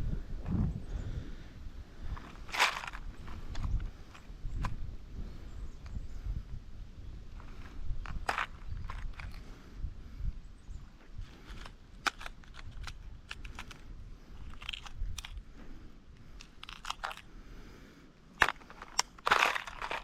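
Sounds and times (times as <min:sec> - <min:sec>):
crunchy rustling: 0:02.0 - 0:04.8, 0:07.3 - 0:09.6, 0:11.0 - 0:20.0.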